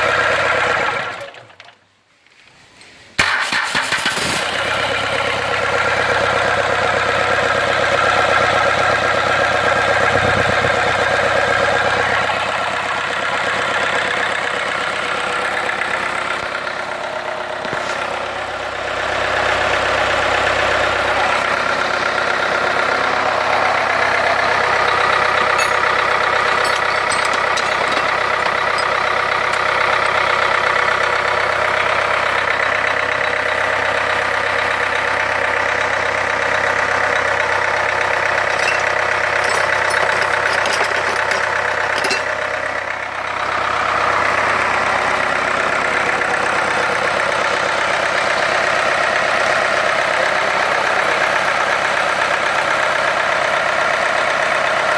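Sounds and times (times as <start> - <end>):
diesel engine idling: 4.8 - 54.9.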